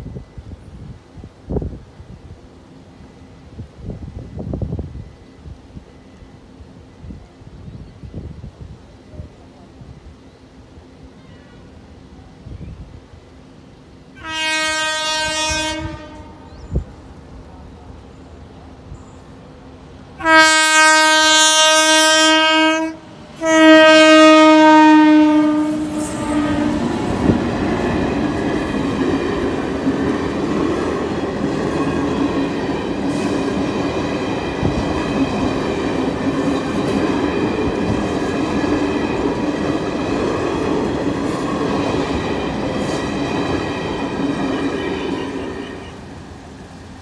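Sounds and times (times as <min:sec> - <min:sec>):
train coaches rumbling past: 0:00.0 - 0:47.0
locomotive horn blasts: 0:14.2 - 0:16.6, 0:20.2 - 0:27.2.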